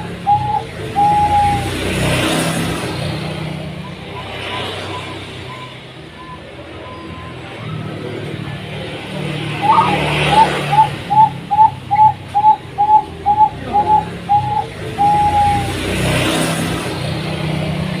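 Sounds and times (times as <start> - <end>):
dove cooing: 0.0 - 1.9, 9.2 - 15.8.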